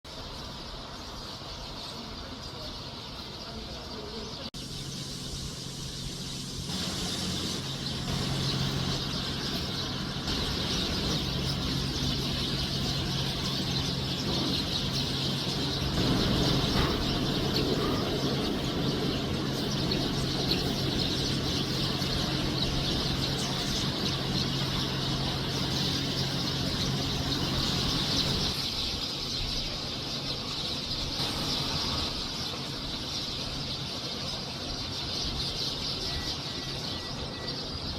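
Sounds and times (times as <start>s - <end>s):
flock of sparrows chirping: 0.1s - 37.9s
steady low hum: 4.0s - 28.8s.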